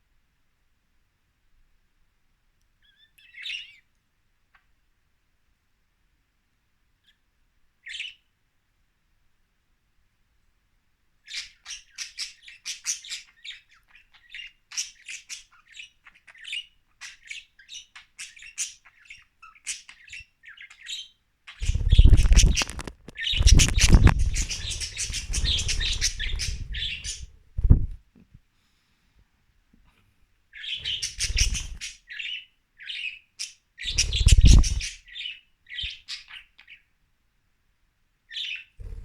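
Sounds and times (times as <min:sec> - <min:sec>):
budgies chirping and squawking: 0:11.3 - 0:27.9, 0:30.6 - 0:36.8
rustling close to microphone: 0:21.6 - 0:28.0, 0:33.9 - 0:34.9.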